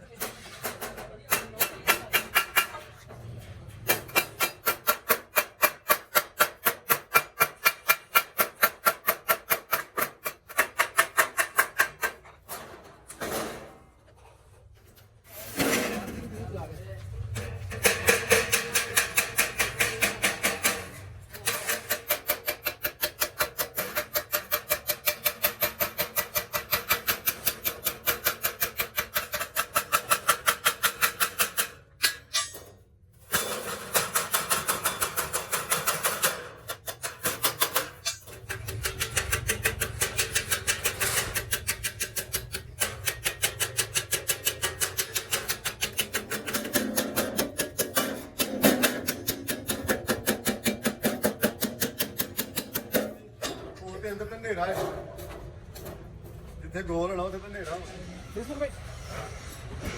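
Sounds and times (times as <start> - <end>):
hammering on sheet metal: 0.2 - 3.0, 3.8 - 12.3, 17.3 - 32.7, 33.3 - 53.7.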